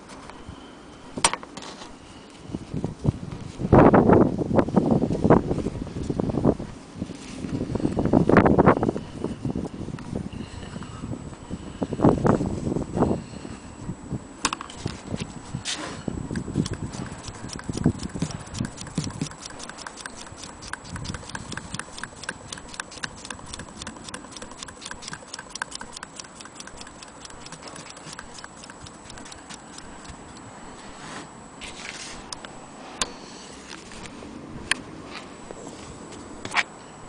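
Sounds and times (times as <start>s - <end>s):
sewing machine ticking: 16.6s - 30.2s.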